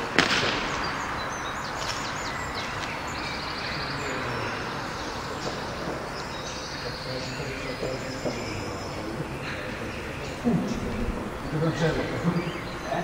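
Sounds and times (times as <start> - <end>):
small birds chirping and trilling: 0.0 - 13.0
steady background noise: 0.0 - 13.0.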